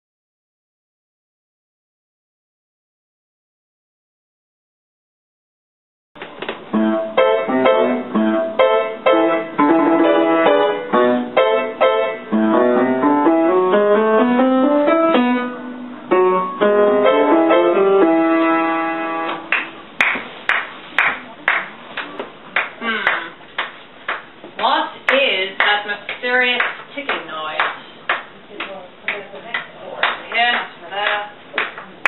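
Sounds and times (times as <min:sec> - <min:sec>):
piano duet: 0:06.7 - 0:22.2.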